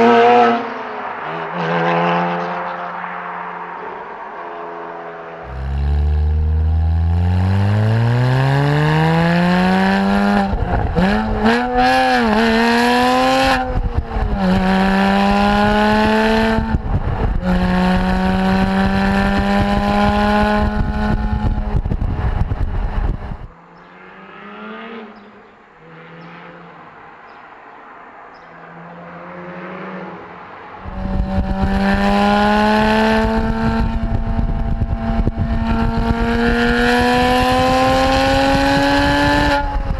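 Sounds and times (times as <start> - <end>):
car engine revving: 0.0 - 27.0, 28.8 - 39.9.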